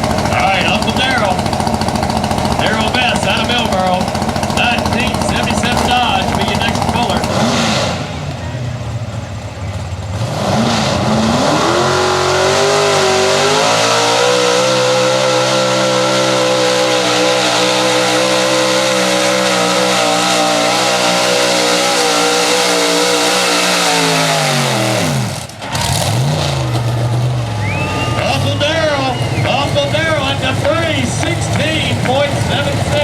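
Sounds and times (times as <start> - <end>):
truck engine revving under load: 0.0 - 33.0.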